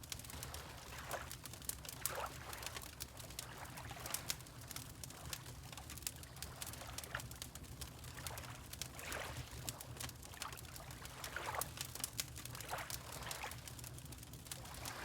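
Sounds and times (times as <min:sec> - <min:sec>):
wood fire crackling: 0:00.0 - 0:02.0, 0:04.2 - 0:08.9, 0:11.6 - 0:15.0
water lapping: 0:14.6 - 0:15.0.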